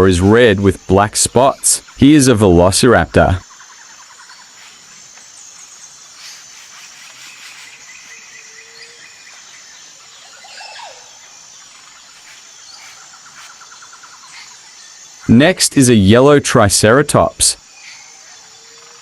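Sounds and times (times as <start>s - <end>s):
insects trilling: 0.0s - 19.0s
bird chirps: 3.4s - 15.3s.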